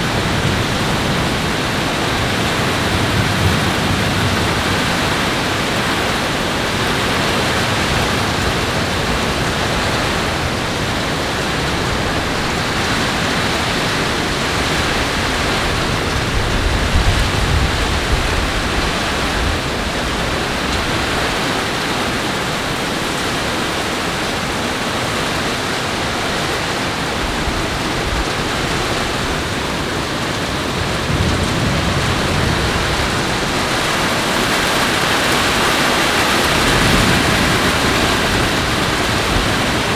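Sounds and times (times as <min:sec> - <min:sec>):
heavy rain: 0:00.0 - 0:39.9
thunder rumble: 0:27.9 - 0:39.9.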